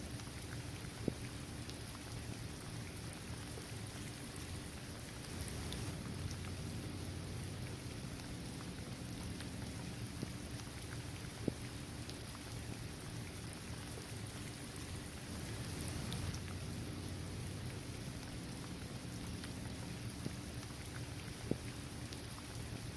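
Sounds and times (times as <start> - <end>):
steady rain falling: 0.0 - 22.9
raindrops ticking: 5.2 - 22.9.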